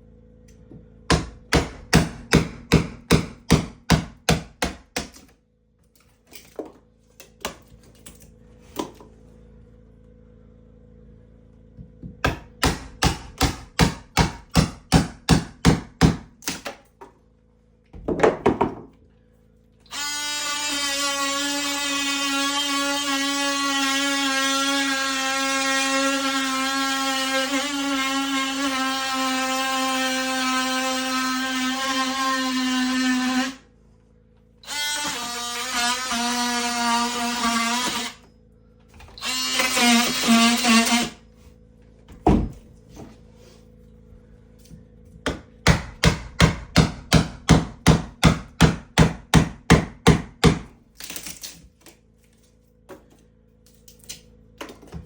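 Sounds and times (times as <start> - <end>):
electric drill whining: 19.8 - 33.6, 34.6 - 38.3, 39.0 - 41.2.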